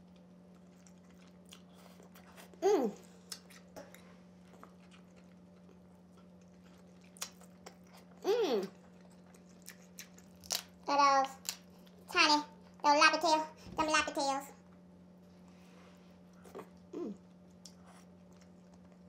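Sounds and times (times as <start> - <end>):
chewing with wet mouth clicks: 0.0 - 2.6, 3.2 - 12.0, 16.3 - 19.0
faint steady hum: 0.0 - 19.0.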